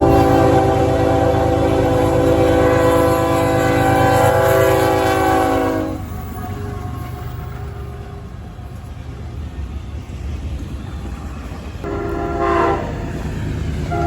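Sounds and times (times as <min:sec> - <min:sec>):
locomotive air horn chord: 0:00.0 - 0:06.1, 0:11.8 - 0:13.2
locomotive engine rumble: 0:00.0 - 0:14.0.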